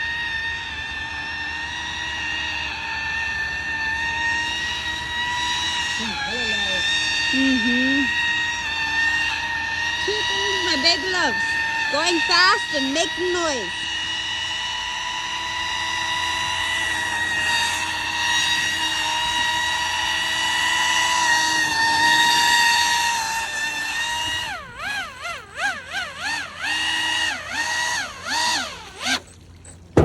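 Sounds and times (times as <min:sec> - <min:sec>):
electric motor and propeller whining: 0:00.0 - 0:30.0.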